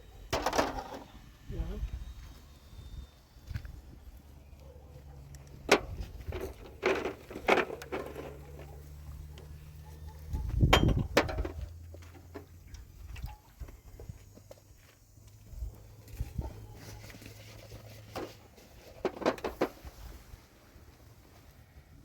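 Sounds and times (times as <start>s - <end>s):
sharp knocks and clinks: 10.3s - 11.6s.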